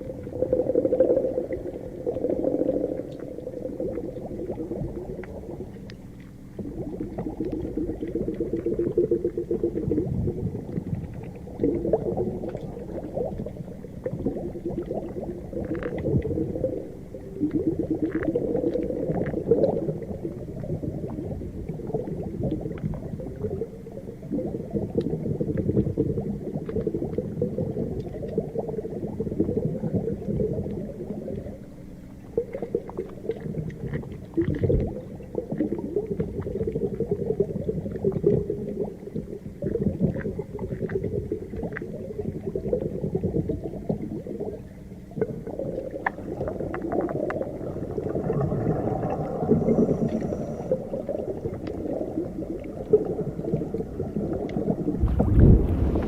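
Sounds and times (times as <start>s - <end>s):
underwater churning rumble: 0.0s - 56.0s
faint underwater clicks: 1.4s - 56.0s.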